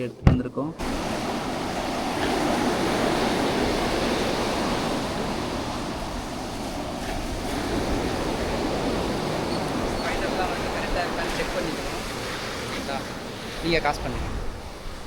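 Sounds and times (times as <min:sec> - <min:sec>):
sea surf washing onto beach: 0:00.0 - 0:15.0.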